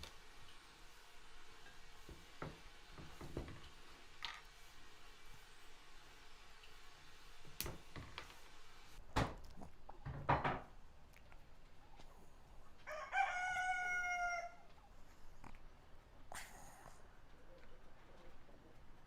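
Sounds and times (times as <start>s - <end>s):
rooster crowing: 12.8s - 14.7s.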